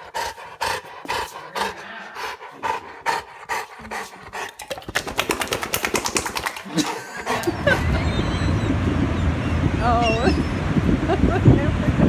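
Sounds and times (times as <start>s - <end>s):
dog panting: 0.0s - 8.3s.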